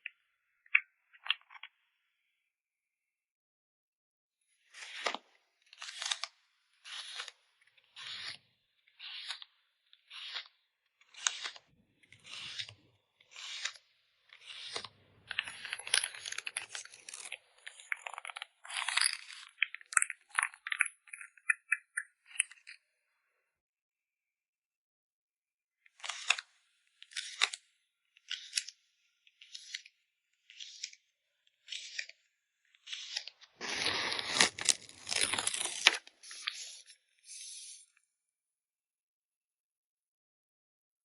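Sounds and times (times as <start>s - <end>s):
packing material crinkling: 14.4s - 20.8s, 32.9s - 36.8s
packing material rustling: 33.2s - 36.8s.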